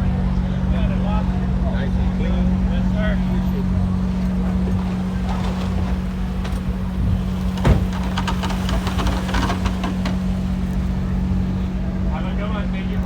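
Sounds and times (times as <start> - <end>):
low mechanical hum: 0.0 - 13.0
short thump: 4.4 - 10.3.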